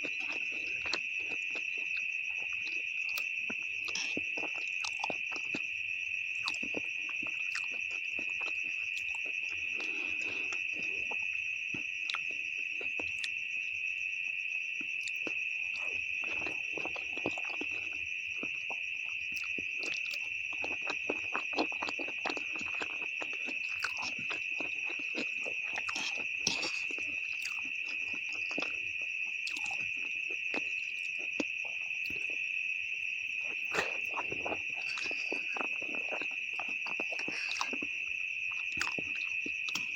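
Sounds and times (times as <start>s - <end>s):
person chewing and slurping: 0.0s - 5.6s, 6.4s - 11.3s, 15.2s - 32.4s, 33.4s - 39.9s.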